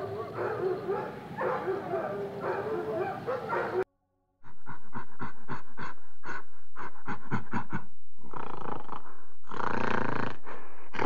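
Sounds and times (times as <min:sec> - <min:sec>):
gorilla panting pulses: 0:04.4 - 0:11.0.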